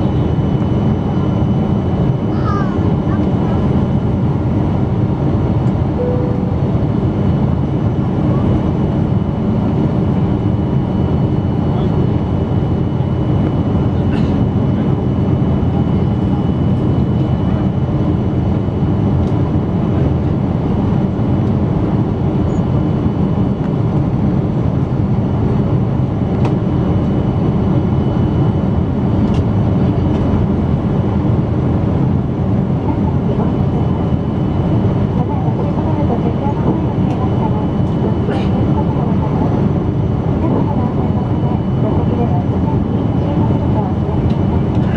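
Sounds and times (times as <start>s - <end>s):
airliner cabin rumble: 0.0s - 44.9s
faint high tone: 6.0s - 7.0s.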